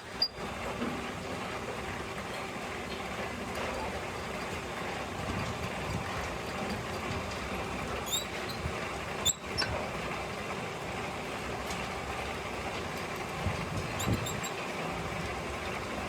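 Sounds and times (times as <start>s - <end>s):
workshop machinery noise: 0.0s - 16.0s
short high squeaks: 0.1s - 0.4s, 8.1s - 8.6s, 9.2s - 9.7s, 14.0s - 14.6s.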